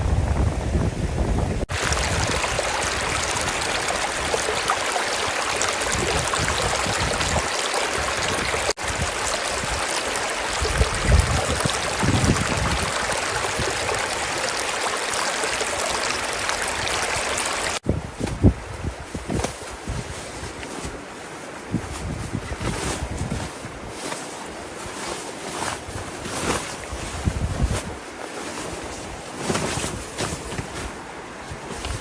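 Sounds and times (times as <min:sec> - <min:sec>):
river water rushing: 0:01.7 - 0:17.8.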